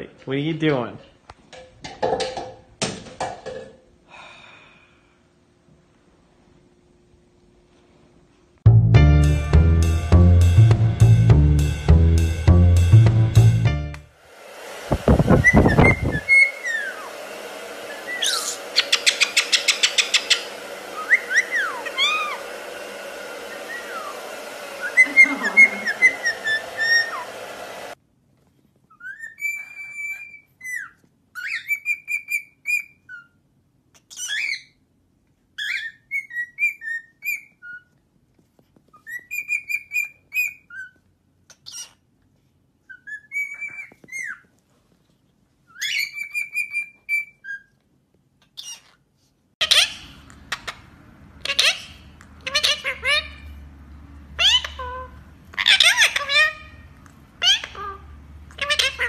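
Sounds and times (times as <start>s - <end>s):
steady hum: 10.0s - 28.0s
birds whistling and chirping: 15.4s - 17.0s, 18.0s - 22.4s, 24.8s - 27.2s, 29.0s - 33.3s, 34.1s - 34.7s, 35.6s - 37.9s, 39.0s - 41.0s, 42.9s - 44.5s, 45.7s - 47.7s.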